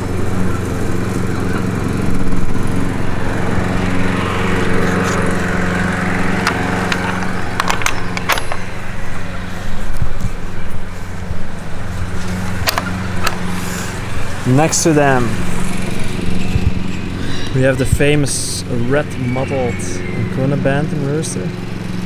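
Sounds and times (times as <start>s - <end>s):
engine running steadily: 0.0s - 22.0s
sharp clicks: 6.3s - 8.9s.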